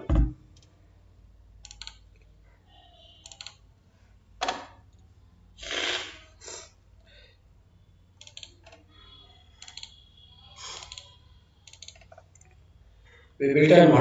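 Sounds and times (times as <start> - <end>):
computer keyboard clicking: 1.6 - 2.2, 3.2 - 3.6, 8.2 - 8.8, 9.6 - 10.0, 10.6 - 12.6.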